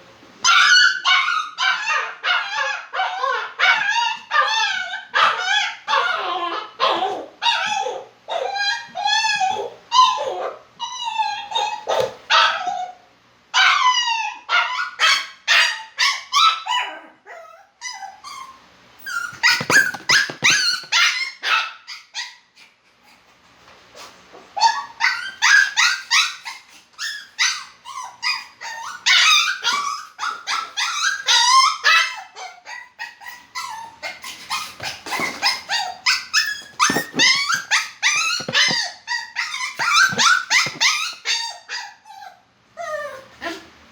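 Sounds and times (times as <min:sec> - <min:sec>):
dog yipping and whimpering: 0:00.4 - 0:13.0, 0:13.6 - 0:22.5, 0:24.6 - 0:43.6.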